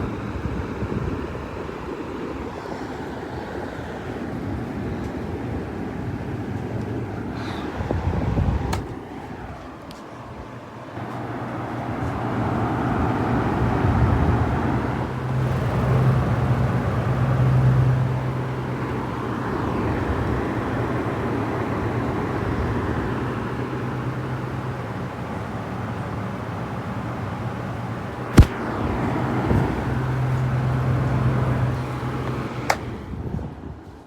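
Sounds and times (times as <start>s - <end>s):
table fan running: 10.4s - 33.2s.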